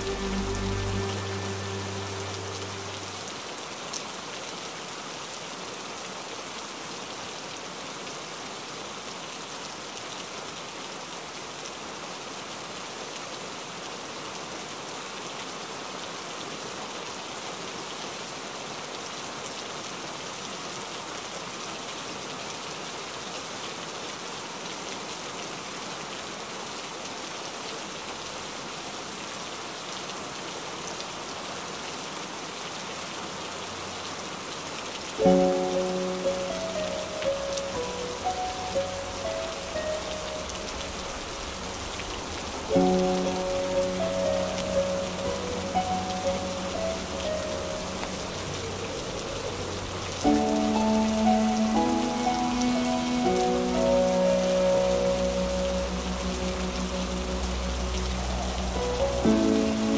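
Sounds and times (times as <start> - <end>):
heavy rain on window glass: 16.2 - 59.9.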